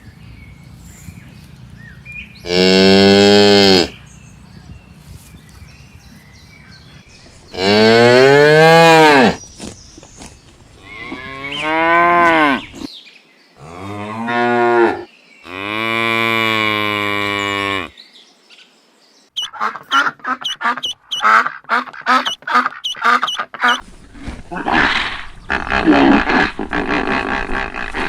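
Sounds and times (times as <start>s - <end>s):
cattle mooing: 2.4s - 4.0s, 10.9s - 12.8s.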